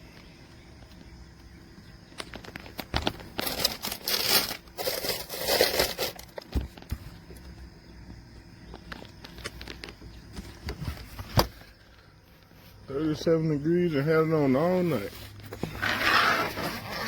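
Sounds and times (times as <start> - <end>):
crinkling and rustling by hand: 1.7 - 12.8.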